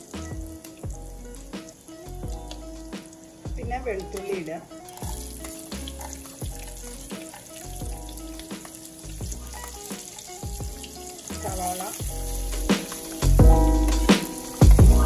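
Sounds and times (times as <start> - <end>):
background music with low beat: 0.0 - 15.0
garlic sizzling in oil: 0.0 - 15.0.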